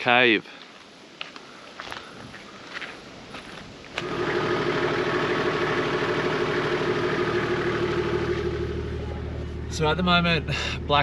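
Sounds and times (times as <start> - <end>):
vehicle engine running: 4.0 - 11.0.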